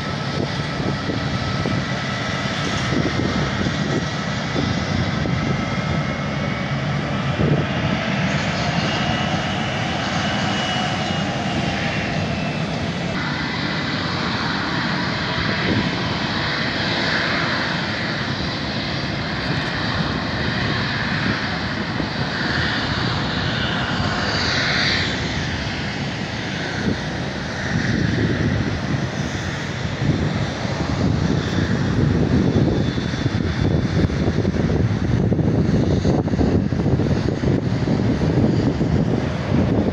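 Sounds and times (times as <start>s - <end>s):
jet engines rushing: 0.0s - 39.9s
faint high whine: 12.5s - 15.6s.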